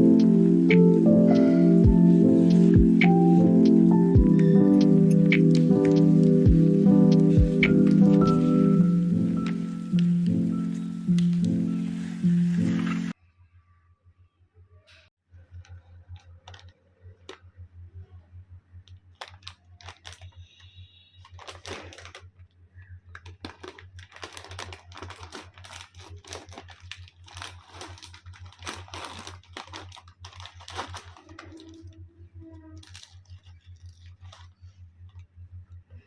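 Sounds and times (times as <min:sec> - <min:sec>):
steady low hum: 0:00.0 - 0:14.4, 0:15.3 - 0:21.4, 0:26.5 - 0:36.0.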